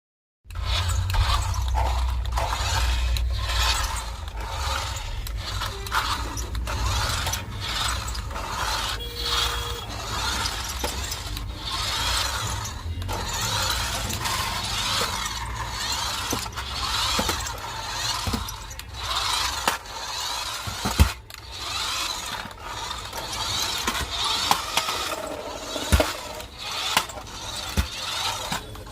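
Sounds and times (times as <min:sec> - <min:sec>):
low hum: 0:00.5 - 0:18.0
small mechanism clicking and rattling: 0:00.5 - 0:28.9.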